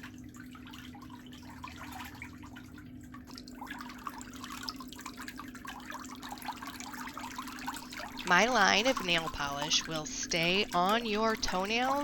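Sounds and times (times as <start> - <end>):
water trickling and dripping: 0.0 - 12.0
steady low hum: 5.3 - 12.0.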